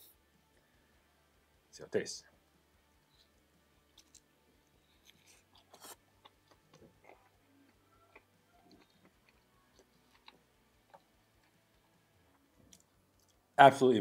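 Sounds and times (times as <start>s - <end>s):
crunchy chewing: 3.9s - 12.0s.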